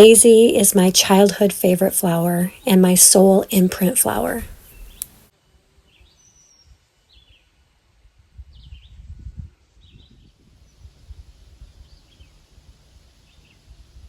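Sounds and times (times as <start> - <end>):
faint low rumble: 0.0 - 5.1
bird chirping: 1.6 - 5.2.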